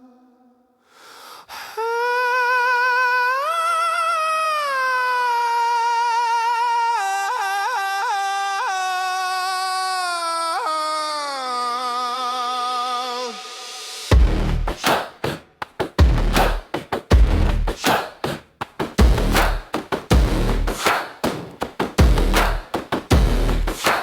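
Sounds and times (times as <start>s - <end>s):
wordless high singing voice: 0.0s - 0.8s, 1.4s - 14.2s
brief swish: 14.7s - 15.4s, 17.8s - 18.4s, 23.8s - 24.0s.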